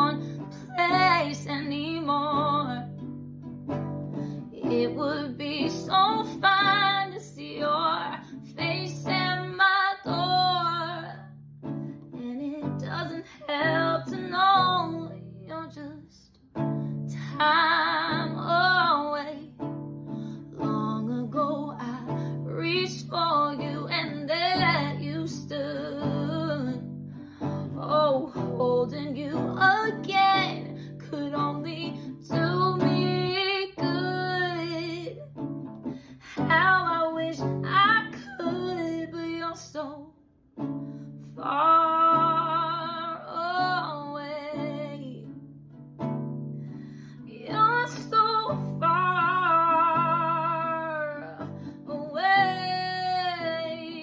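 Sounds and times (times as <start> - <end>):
plucked acoustic guitar: 0.0 - 39.9, 40.5 - 54.0.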